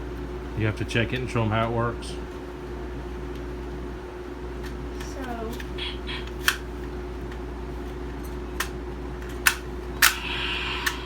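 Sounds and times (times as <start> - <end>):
plastic toy gun clicking: 6.3 - 6.6, 8.6 - 10.2.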